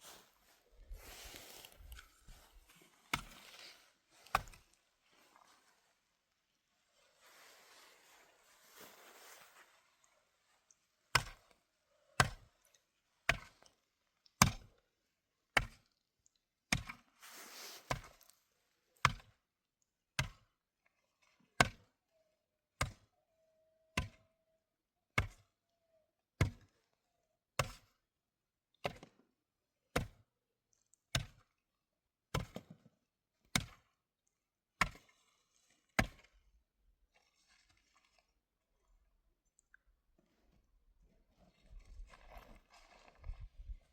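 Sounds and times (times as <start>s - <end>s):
wood chopping strikes: 33.5s - 33.8s.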